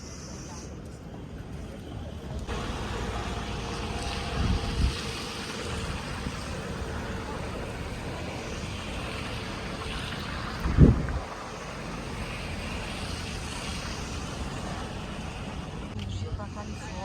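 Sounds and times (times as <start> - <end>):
wind on microphone: 4.1 - 6.8, 8.8 - 11.8.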